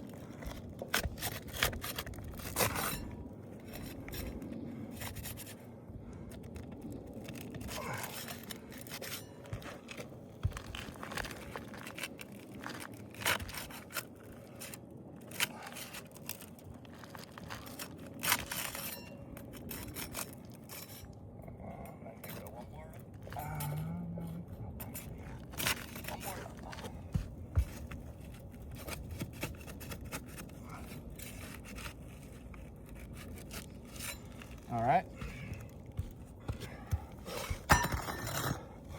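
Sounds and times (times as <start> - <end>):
scraping on roof shingles: 0.0 - 5.6, 7.0 - 18.9, 25.2 - 38.9.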